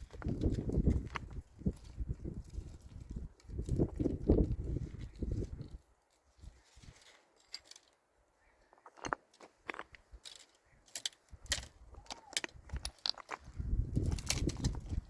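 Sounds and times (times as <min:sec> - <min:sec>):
clicks of small hard objects: 0:08.8 - 0:15.0.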